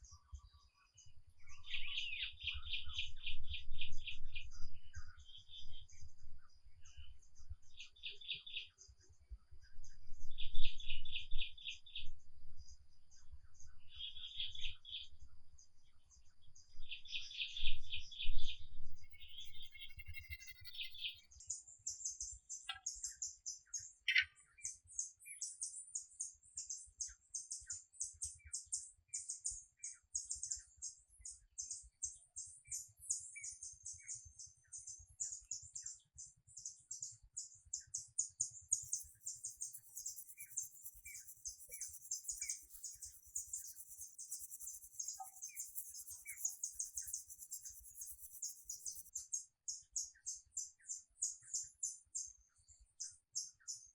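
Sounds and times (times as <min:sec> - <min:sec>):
birds chirping: 0:17.0 - 0:23.3, 0:34.7 - 0:49.3.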